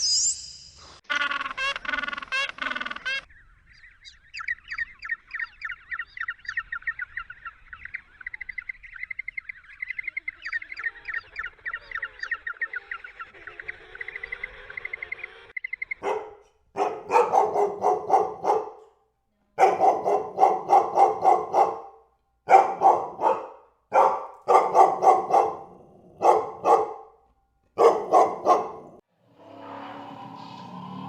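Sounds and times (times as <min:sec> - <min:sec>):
dog barking: 0:16.0 - 0:19.0, 0:19.6 - 0:29.0.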